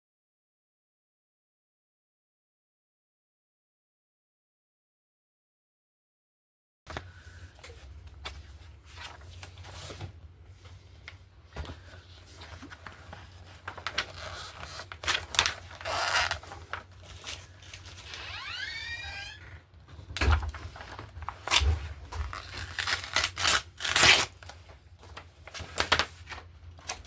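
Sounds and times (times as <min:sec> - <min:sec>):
paper rustling: 0:06.9 - 0:18.6, 0:20.3 - 0:27.0
scissors snipping paper: 0:22.3 - 0:24.3.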